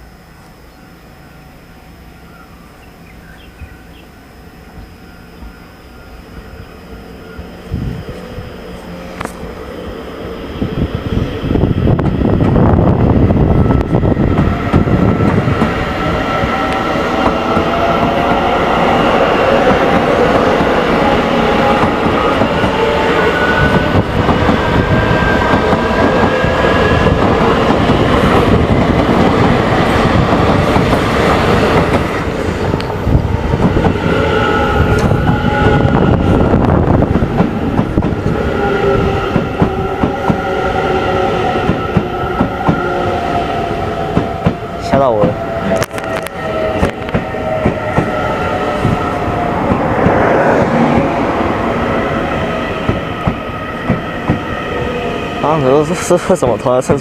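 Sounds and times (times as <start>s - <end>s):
train wheels clacking on rails: 11.9s - 51.5s, 52.4s - 57.0s.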